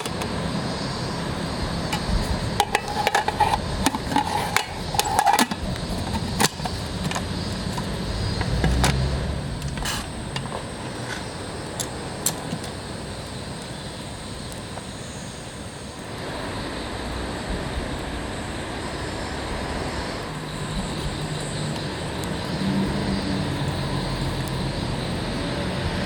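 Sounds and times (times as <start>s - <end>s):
sharp clicks and knocks: 0.0s - 0.3s, 1.9s - 12.8s.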